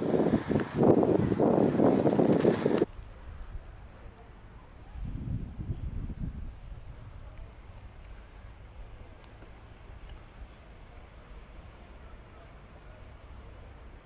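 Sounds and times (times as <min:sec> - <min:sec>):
small bird chirping: 0:04.5 - 0:07.2, 0:08.0 - 0:08.9.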